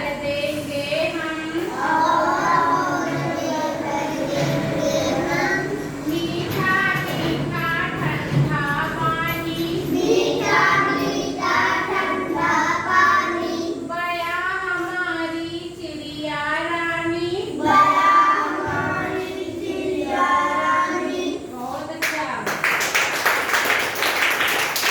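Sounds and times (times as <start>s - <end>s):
child singing: 1.2s - 15.0s, 16.8s - 21.6s.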